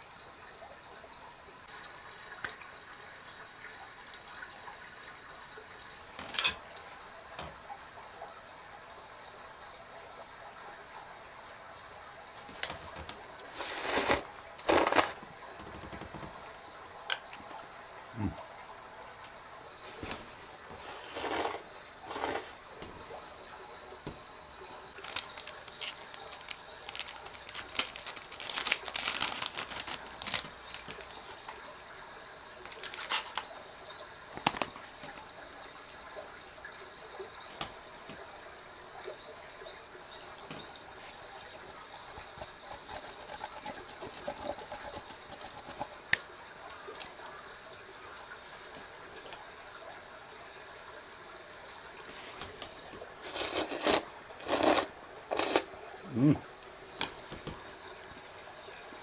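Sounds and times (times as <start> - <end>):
rustling: 25.0 - 31.5.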